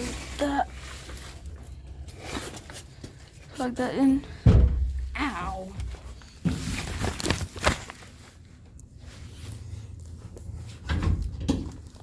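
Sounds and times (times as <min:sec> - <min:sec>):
handling noises: 0:05.7 - 0:12.0.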